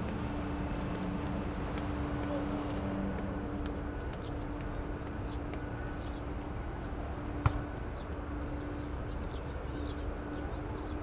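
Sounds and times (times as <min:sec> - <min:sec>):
low outdoor rumble: 0:00.0 - 0:11.0
small birds chirping: 0:00.1 - 0:11.0.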